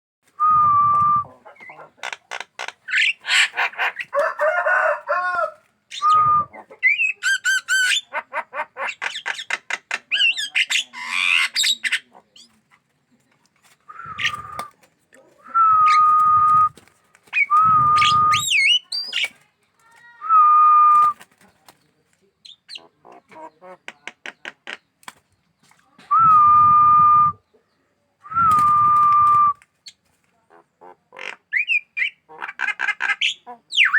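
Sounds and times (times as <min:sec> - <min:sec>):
harsh bird calls: 0:01.3 - 0:12.6, 0:13.9 - 0:14.7.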